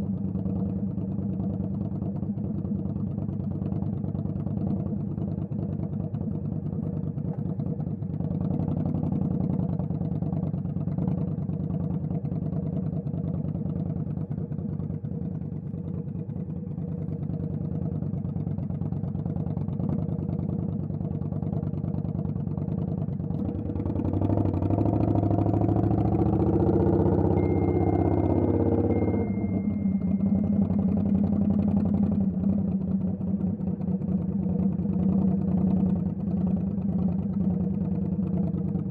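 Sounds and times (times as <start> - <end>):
vehicle engines idling: 0.0 - 38.9
engine revving: 23.4 - 32.8
thin steady whistle: 27.0 - 31.5.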